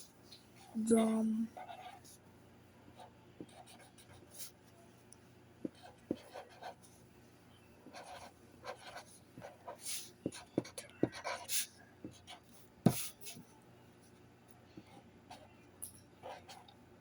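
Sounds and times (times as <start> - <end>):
marker scratching on paper: 1.5 - 2.2, 3.0 - 4.6, 5.6 - 7.0, 7.8 - 13.5.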